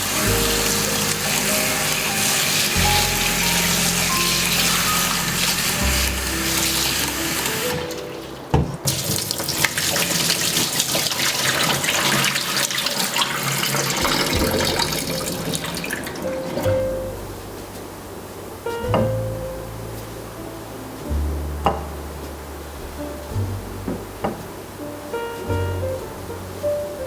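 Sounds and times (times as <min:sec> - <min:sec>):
tap water running into sink: 0:00.0 - 0:16.8.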